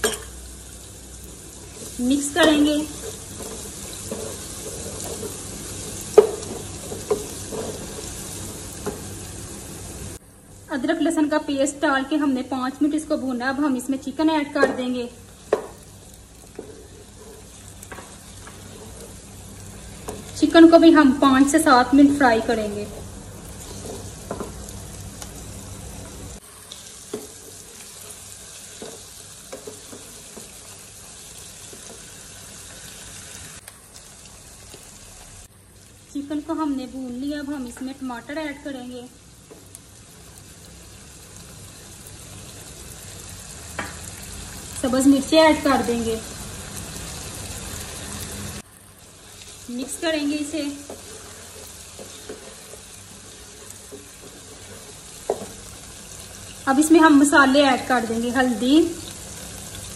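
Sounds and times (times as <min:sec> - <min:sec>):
onions sizzling in hot oil: 0:00.0 - 0:59.9
wooden spoon knocking on pan: 0:06.1 - 0:07.9, 0:14.6 - 0:14.9, 0:15.5 - 0:15.8, 0:23.8 - 0:24.6, 0:55.2 - 0:55.6.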